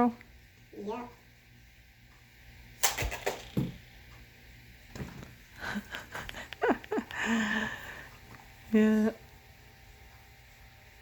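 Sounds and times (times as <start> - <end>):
toy bow snap: 2.8 - 3.7.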